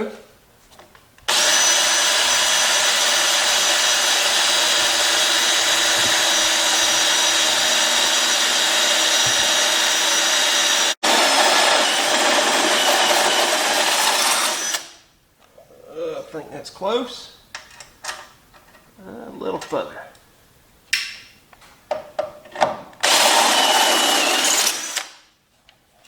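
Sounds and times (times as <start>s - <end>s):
power drill drilling: 1.3s - 15.0s, 23.0s - 25.3s.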